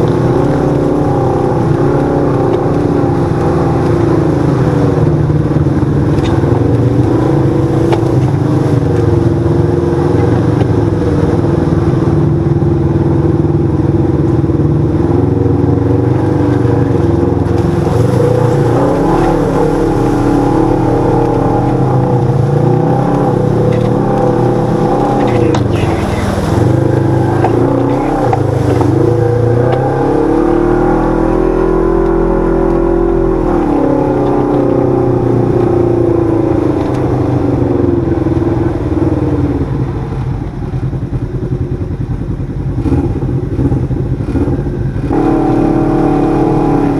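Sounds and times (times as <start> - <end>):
utility vehicle engine revving: 0.0 - 46.9.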